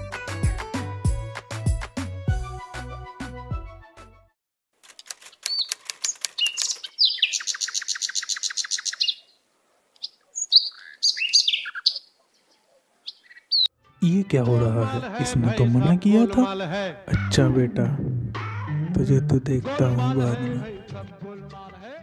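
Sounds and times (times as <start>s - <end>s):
background music: 0.0s - 4.4s, 13.7s - 22.0s
birds chirping and trilling: 5.3s - 13.7s.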